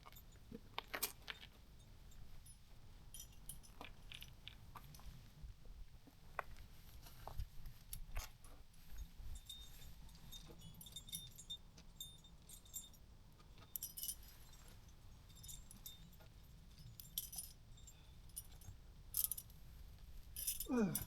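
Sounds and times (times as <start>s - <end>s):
metal climbing hardware jingling: 0.0s - 5.1s, 9.2s - 19.7s, 20.3s - 21.0s.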